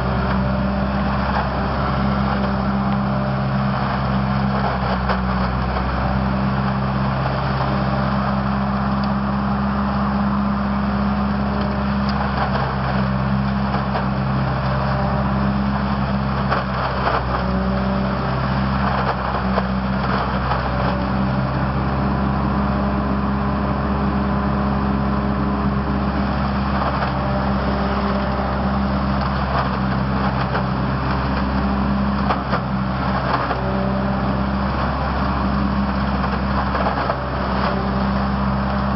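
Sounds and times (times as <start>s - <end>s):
engine hum: 0.0s - 38.9s.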